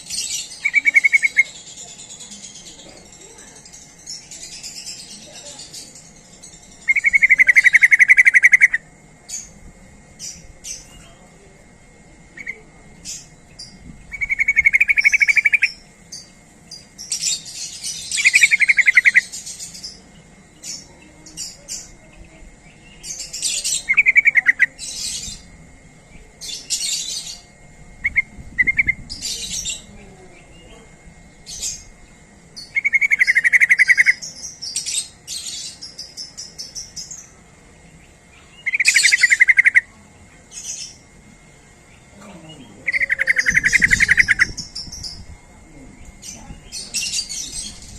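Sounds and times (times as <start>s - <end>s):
bird chattering: 0.0s - 9.6s, 10.2s - 11.2s, 12.3s - 25.5s, 26.3s - 41.2s, 41.8s - 47.9s
sharp high bird chirps: 0.0s - 9.6s, 12.4s - 20.0s, 32.6s - 37.4s, 38.4s - 39.9s, 42.8s - 45.3s.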